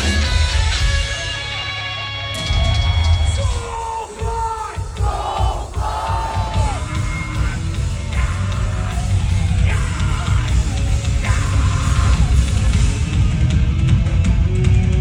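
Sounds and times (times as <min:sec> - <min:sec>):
heavy metal band playing live: 0:00.0 - 0:15.0
person yelling: 0:03.4 - 0:12.4.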